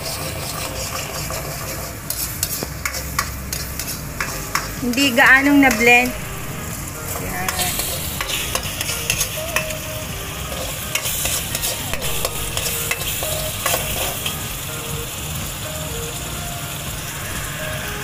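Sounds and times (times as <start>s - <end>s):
spatula scraping a pan: 0.0s - 5.8s, 7.1s - 14.4s
paste sizzling in a wok: 0.0s - 18.0s.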